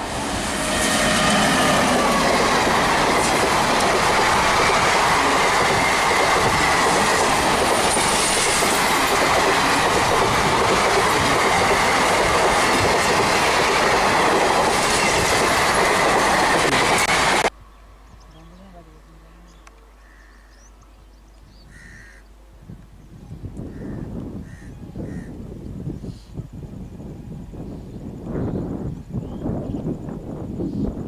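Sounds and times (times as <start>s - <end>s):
train wheels rushing on rail: 0.0s - 17.5s
wheels clacking over rail joints: 0.0s - 17.5s.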